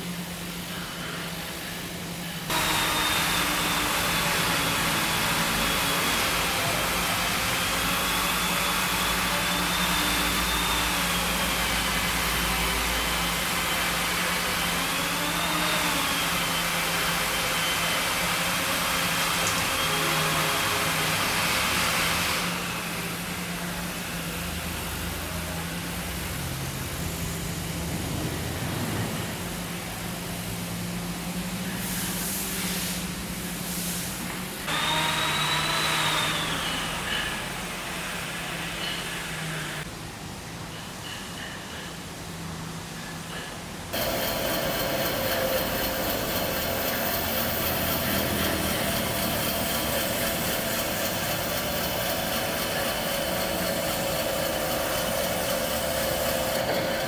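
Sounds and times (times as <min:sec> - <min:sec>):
power tool whine: 0:02.5 - 0:24.4, 0:34.7 - 0:39.8, 0:43.9 - 0:57.0
low machine hum: 0:44.0 - 0:57.0.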